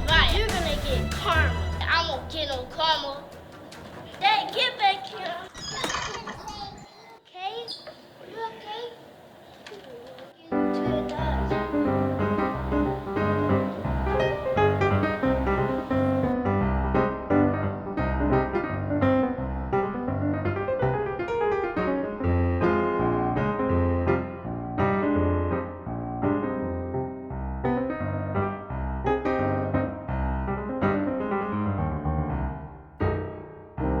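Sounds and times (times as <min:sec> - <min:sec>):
lively piano music: 0:10.5 - 0:34.0.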